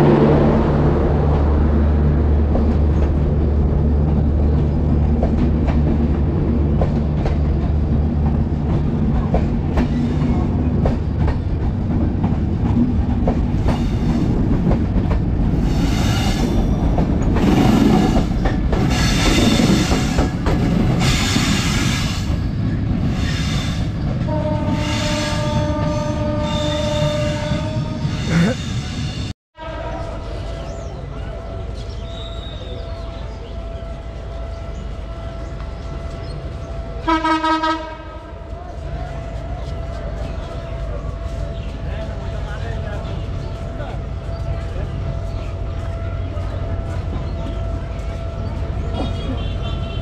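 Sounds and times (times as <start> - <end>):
coaches rattling over rails: 0.0 - 29.2, 30.0 - 50.0
train horn: 24.2 - 28.6, 29.6 - 30.7, 31.4 - 38.4, 45.8 - 50.0.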